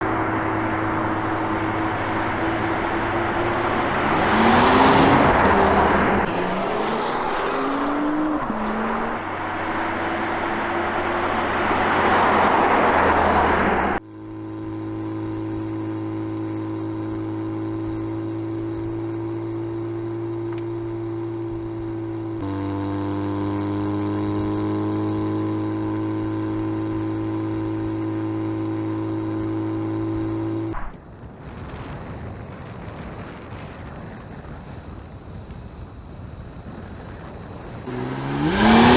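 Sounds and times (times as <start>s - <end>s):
car engine revving: 0.0s - 30.9s, 37.9s - 38.9s
road noise: 0.0s - 31.9s, 34.4s - 38.9s
steady even drone: 0.2s - 11.4s.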